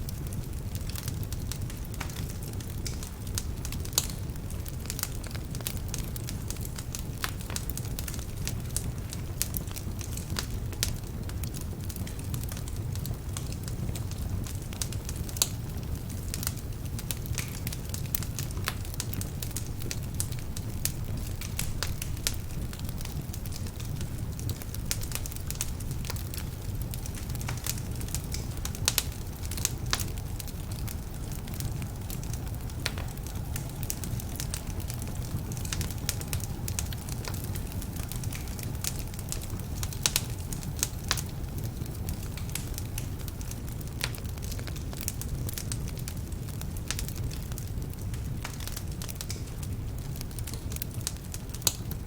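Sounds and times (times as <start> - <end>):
wood fire crackling in fireplace: 0.0 - 52.0.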